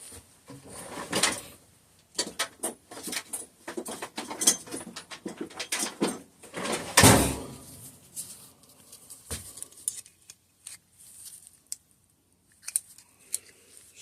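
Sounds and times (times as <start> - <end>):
loud clunk: 6.6 - 7.6.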